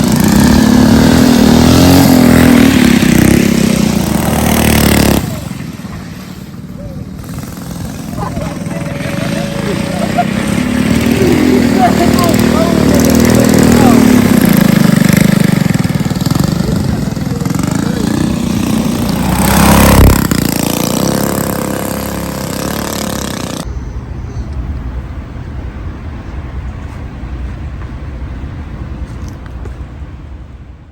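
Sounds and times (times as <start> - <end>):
engines revving loudly: 0.0 - 23.7
noisy surroundings: 0.0 - 30.9.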